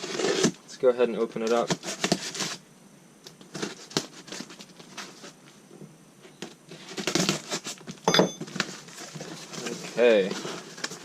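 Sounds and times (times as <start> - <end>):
cardboard parcel being opened: 0.0 - 0.6, 1.4 - 2.6, 3.4 - 5.4, 6.4 - 11.0.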